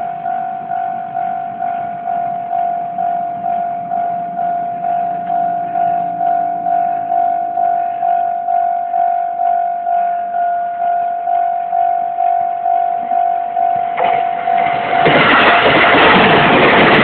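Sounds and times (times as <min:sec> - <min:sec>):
level crossing bell dinging: 0:00.0 - 0:15.2
train wheels rumbling on rails: 0:00.0 - 0:17.0.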